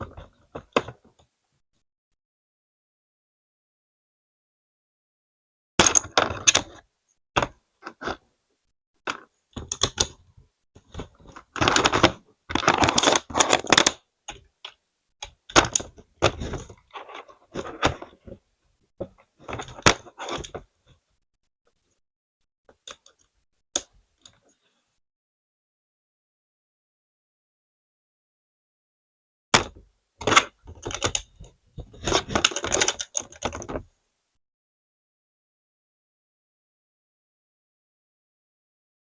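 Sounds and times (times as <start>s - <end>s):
plastic bricks clicking and clattering: 5.8s - 6.8s, 10.8s - 18.4s, 29.6s - 33.9s.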